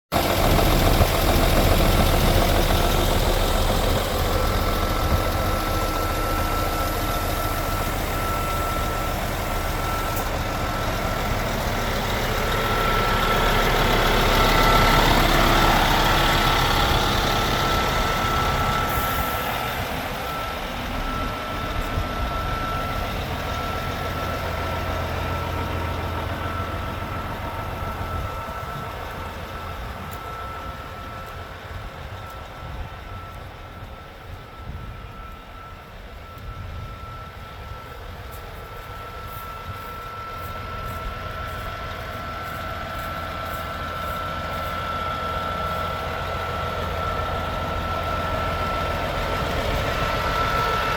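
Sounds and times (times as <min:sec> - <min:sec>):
truck diesel engine idling: 0:00.1 - 0:50.9
high electronic beep: 0:00.2 - 0:33.8.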